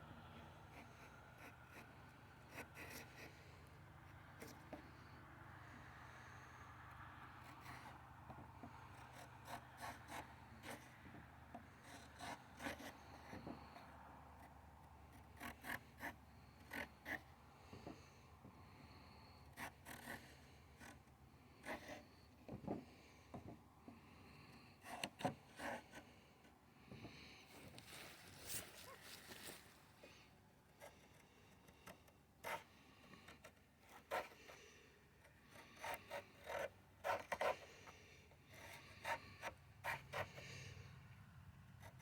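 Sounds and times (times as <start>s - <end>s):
faint scratching and tapping: 4.4s - 5.0s, 7.4s - 18.6s, 19.6s - 24.0s, 24.8s - 30.1s.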